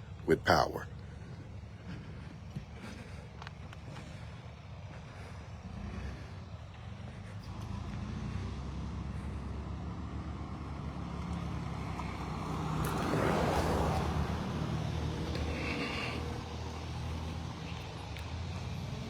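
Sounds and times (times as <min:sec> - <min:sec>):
vehicle engine running: 0:00.0 - 0:19.0
rush of passing vehicle: 0:03.8 - 0:19.0.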